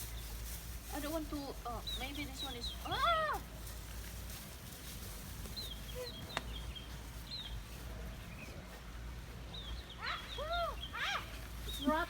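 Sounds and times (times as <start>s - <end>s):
birds chirping: 1.0s - 3.3s, 5.5s - 12.0s.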